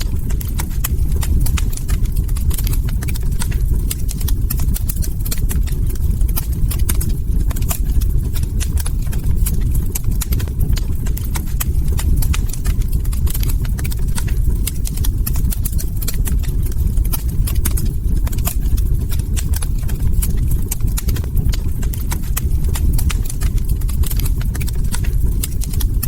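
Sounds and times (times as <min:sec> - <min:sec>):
log fire crackling: 0:00.0 - 0:26.0.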